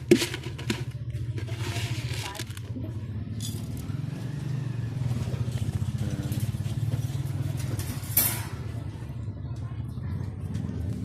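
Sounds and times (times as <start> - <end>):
small engine pulsing rumble: 0.0 - 11.0.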